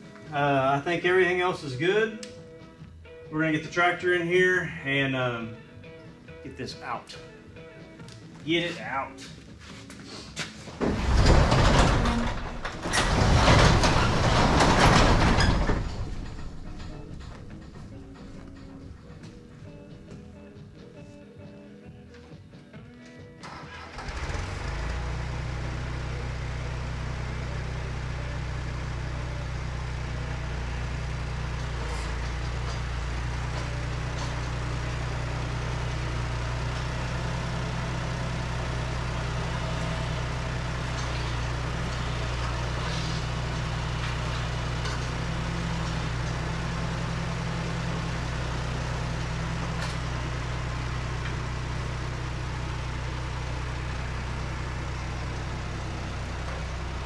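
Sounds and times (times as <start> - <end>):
faint clanks: 10.7 - 20.4
tractor engine running: 10.8 - 21.0, 23.4 - 57.0.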